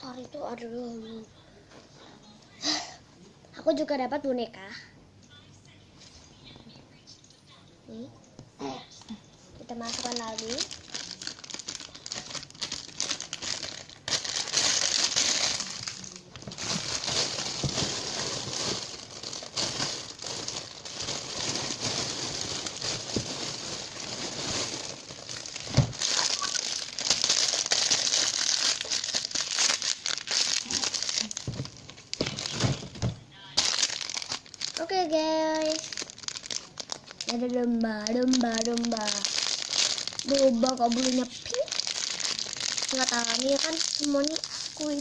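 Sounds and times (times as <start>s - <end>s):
plastic packaging crinkling: 9.6s - 45.0s.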